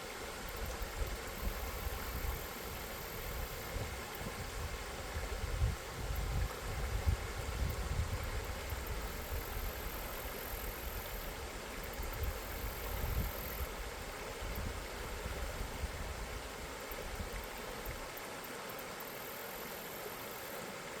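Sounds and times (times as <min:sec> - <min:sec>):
river water rushing: 0:13.7 - 0:21.0.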